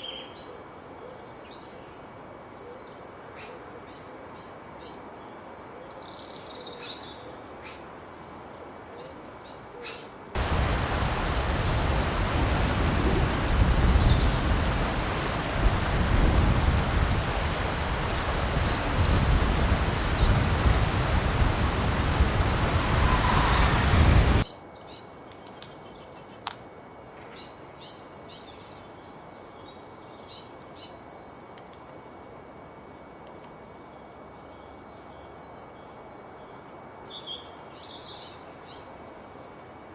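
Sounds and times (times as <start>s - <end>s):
small birds chirping: 6.0s - 24.4s
loud even rushing noise: 10.4s - 24.5s.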